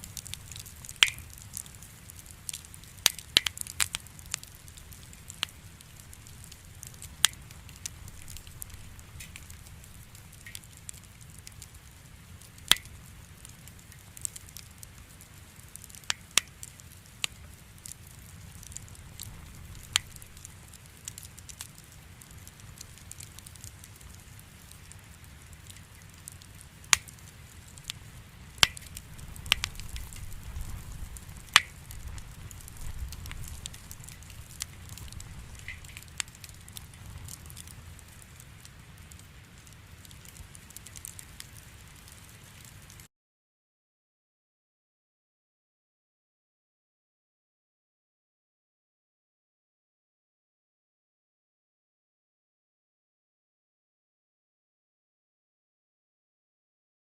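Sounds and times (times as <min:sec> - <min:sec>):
firewood crackling and popping: 0:00.0 - 0:43.1
low rumble of flames: 0:00.0 - 0:43.1.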